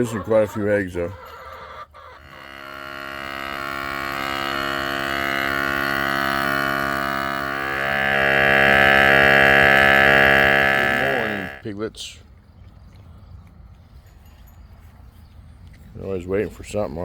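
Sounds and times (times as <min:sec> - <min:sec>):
droning tone with overtones: 0:02.2 - 0:11.6.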